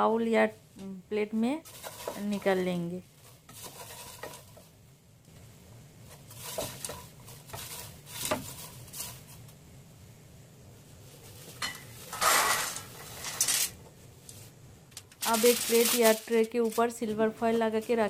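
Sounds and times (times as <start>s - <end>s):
spoon scraping a pan: 1.6s - 2.6s, 3.2s - 4.6s, 6.1s - 9.4s
popcorn rustling rush: 1.6s - 4.8s, 6.0s - 9.7s, 10.8s - 18.0s.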